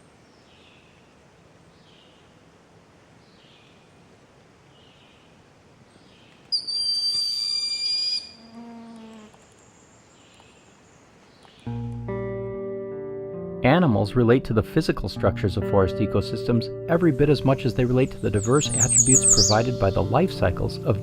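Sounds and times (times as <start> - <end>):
loud high bird whistle: 6.5 - 8.4, 18.5 - 19.7
faint high bird notes: 17.0 - 20.8.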